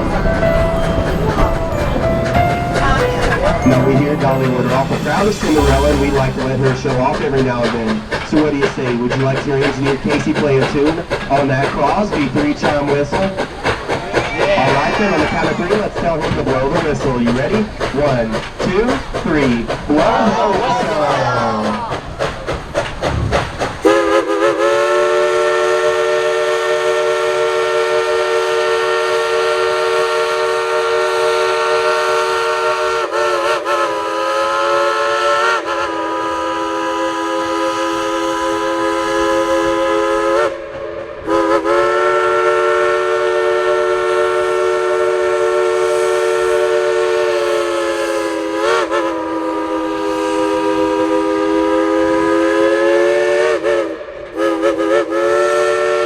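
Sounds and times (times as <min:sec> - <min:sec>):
steam whistle blasts: 0:23.8 - 0:56.0.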